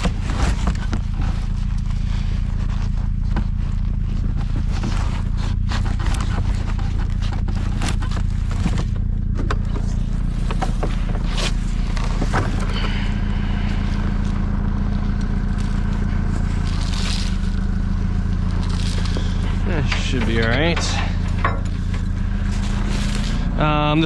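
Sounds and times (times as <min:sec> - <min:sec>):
handling scrapes and clicks: 0:00.0 - 0:23.6
vehicle engine idling: 0:00.0 - 0:24.0.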